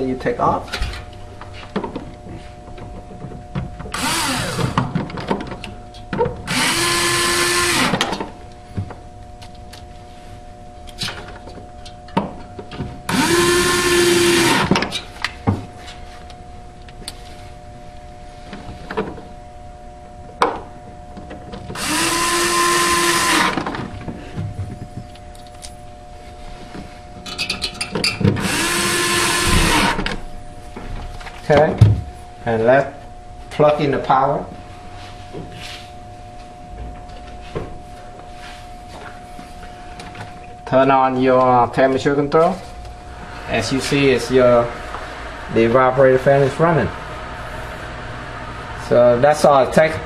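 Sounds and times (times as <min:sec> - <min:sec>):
cordless drill driving screws: 0:04.0 - 0:04.8, 0:06.5 - 0:08.0, 0:13.1 - 0:14.7, 0:21.8 - 0:23.6, 0:28.4 - 0:30.1.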